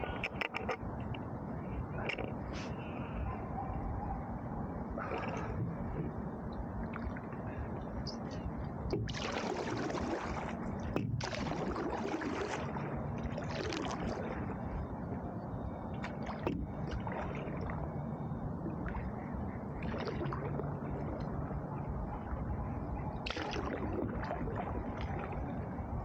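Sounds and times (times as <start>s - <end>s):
steady low rumble: 0.0s - 26.0s
paddle splashing in water: 9.0s - 14.4s.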